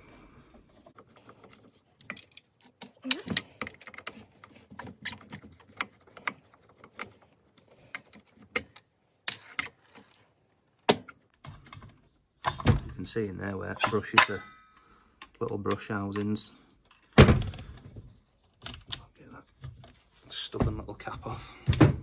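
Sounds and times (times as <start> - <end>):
tools clicking on plastic parts: 1.2 - 10.2.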